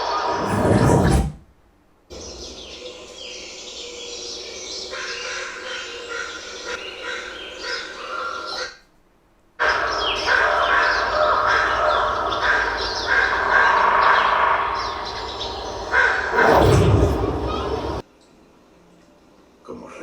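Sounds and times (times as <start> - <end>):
birds chirping and crying: 2.6 - 8.7, 9.6 - 18.0.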